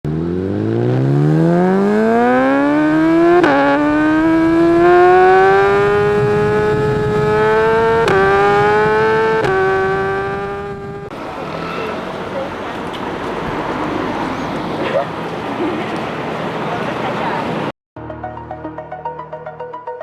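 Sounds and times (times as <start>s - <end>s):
motorcycle engine accelerating: 0.0s - 17.7s.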